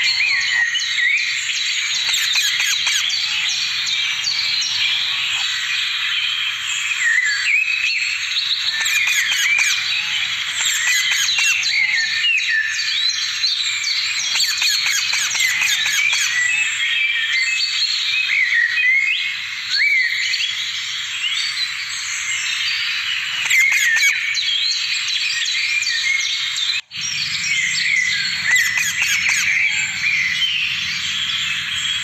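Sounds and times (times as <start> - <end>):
parrots squawking and chirping: 0.0 - 7.2, 8.4 - 12.2, 14.1 - 16.7, 22.5 - 24.5, 25.8 - 32.0.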